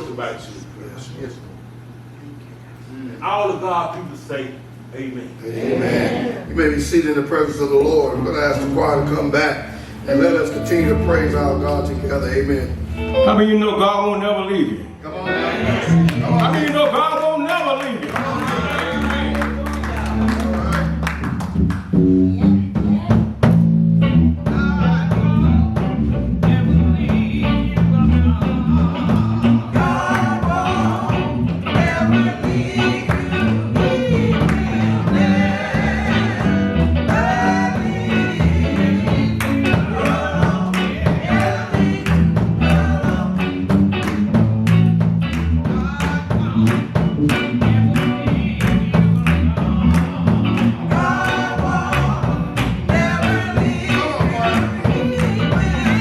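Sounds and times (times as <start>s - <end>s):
guitar: 5.5s - 56.0s
bass line: 6.0s - 16.8s, 18.1s - 56.0s
drums: 18.1s - 56.0s
choir singing: 28.4s - 43.9s, 49.6s - 56.0s.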